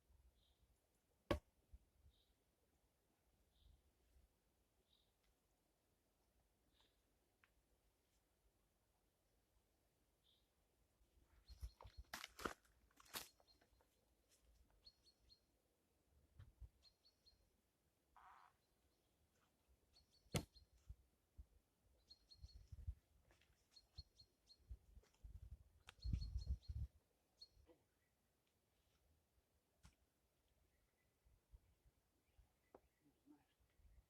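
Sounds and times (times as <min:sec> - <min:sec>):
small birds chirping: 0:04.8 - 0:05.6, 0:06.5 - 0:07.4, 0:10.1 - 0:12.4, 0:13.1 - 0:29.3.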